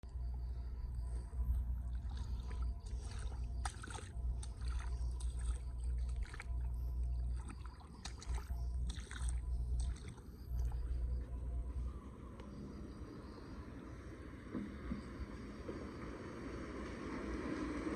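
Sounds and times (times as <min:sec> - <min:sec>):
low rumble: 0:00.0 - 0:17.9
water splashing and sloshing: 0:00.3 - 0:11.8.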